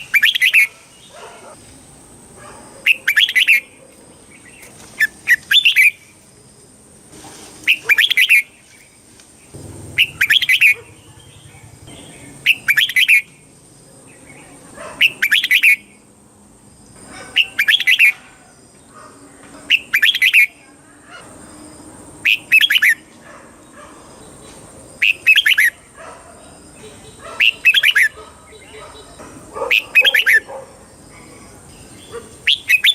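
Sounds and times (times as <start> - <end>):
bird singing whistled phrases: 0.0 - 0.7, 3.0 - 3.6, 12.5 - 13.3, 15.1 - 15.8, 22.3 - 23.0, 27.4 - 29.1, 30.0 - 30.4, 32.5 - 32.9.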